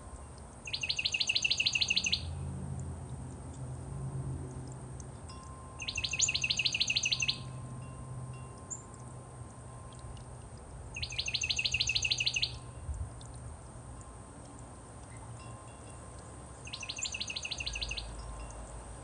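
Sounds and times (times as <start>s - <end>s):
songbird trilling: 0.6s - 2.4s, 5.4s - 7.6s, 8.6s - 9.1s, 10.9s - 12.7s, 16.6s - 18.6s.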